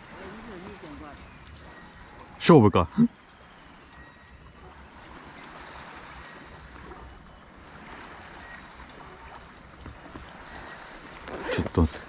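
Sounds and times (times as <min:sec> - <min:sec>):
water lapping against kayak: 0:00.0 - 0:12.0.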